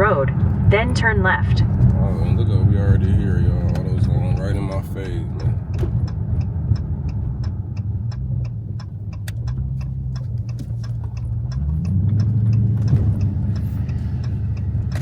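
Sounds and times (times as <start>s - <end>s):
car engine running: 0.0s - 15.0s
turn signal ticking: 0.0s - 15.0s.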